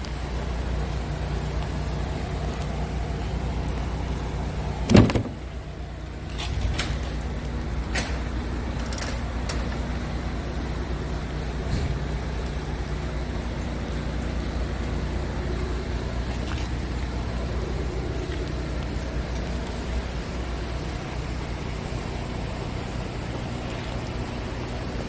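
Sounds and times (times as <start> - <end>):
diesel engine idling: 0.0 - 25.0
loud thump: 4.9 - 5.4.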